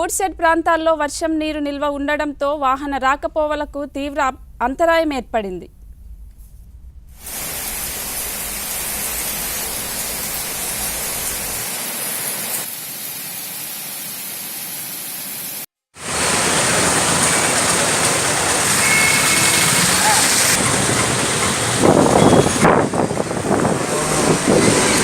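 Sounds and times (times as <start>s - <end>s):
heavy rain falling: 7.2s - 25.0s.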